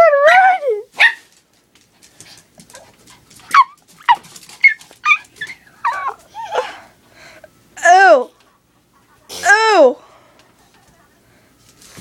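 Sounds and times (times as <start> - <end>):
dog whimpering yips: 3.5 - 6.8.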